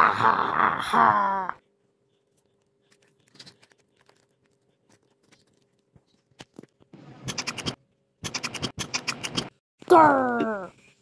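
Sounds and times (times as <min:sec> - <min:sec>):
animal chewing candy: 0:02.3 - 0:05.9.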